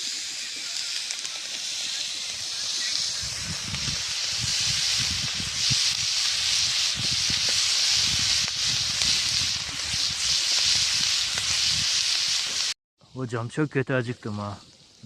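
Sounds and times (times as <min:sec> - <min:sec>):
irregular crackles: 0:00.0 - 0:12.8
meat sizzling in a pan: 0:00.0 - 0:12.8.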